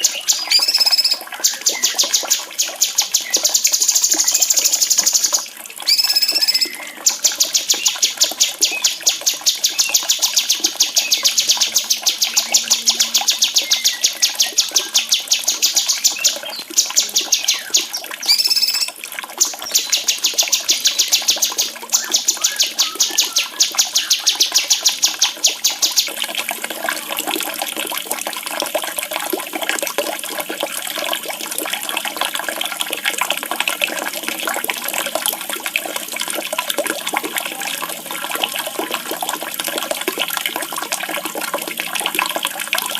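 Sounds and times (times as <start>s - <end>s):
songbird chirping rapidly: 0.0s - 26.2s
running water: 0.0s - 42.9s.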